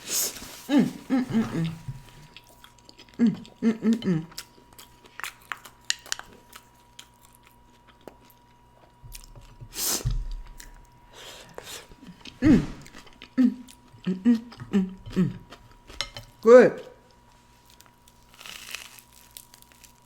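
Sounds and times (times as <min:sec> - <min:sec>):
person chewing food: 0:00.2 - 0:16.4, 0:17.0 - 0:20.0
person humming mm: 0:00.6 - 0:02.2, 0:03.1 - 0:04.4, 0:12.4 - 0:15.6.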